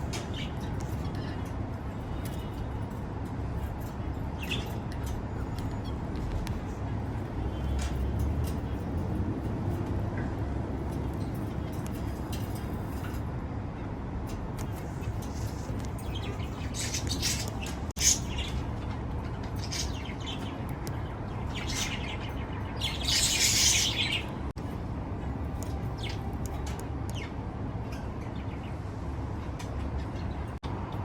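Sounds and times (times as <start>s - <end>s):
baby birds chirping: 15.0s - 24.5s.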